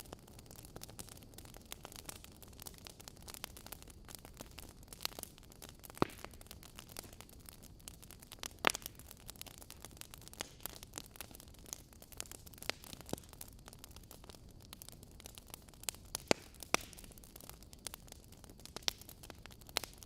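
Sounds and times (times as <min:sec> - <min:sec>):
wood fire crackling: 0:00.0 - 0:20.0
logs popping: 0:04.6 - 0:09.1.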